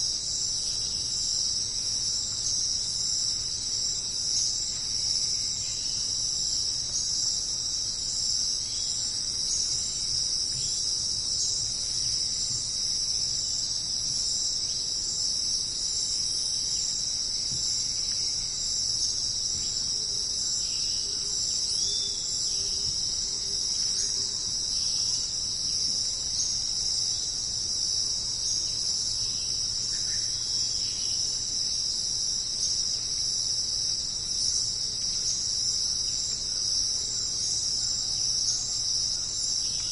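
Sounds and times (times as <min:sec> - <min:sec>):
insects shrill trill: 0:00.0 - 0:39.9.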